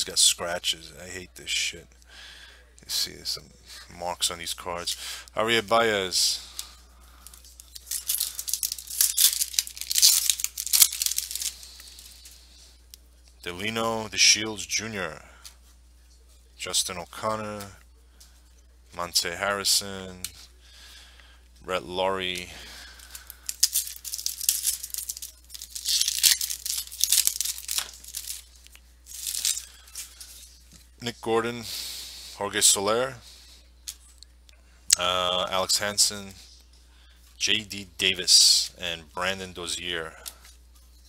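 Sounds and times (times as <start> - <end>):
cards being handled: 6.5 - 13.3, 23.0 - 30.9
foil wrapper tearing and crinkling: 7.3 - 12.3, 22.9 - 30.4.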